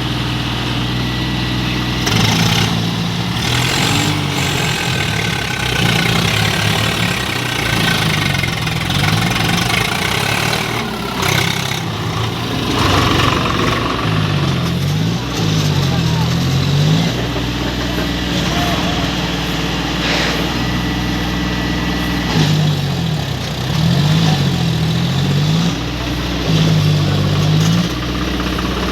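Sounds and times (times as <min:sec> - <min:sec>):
tractor engine running: 0:00.0 - 0:28.9.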